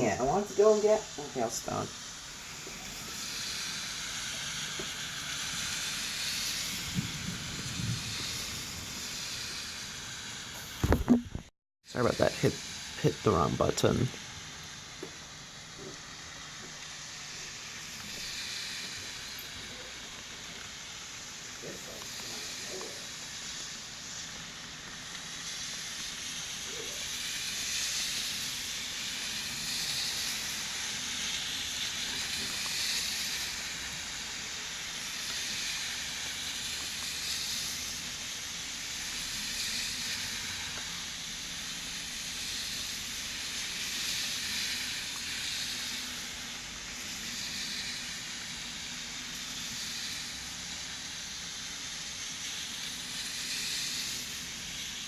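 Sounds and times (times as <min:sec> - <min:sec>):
rain falling: 0:06.8 - 0:10.1.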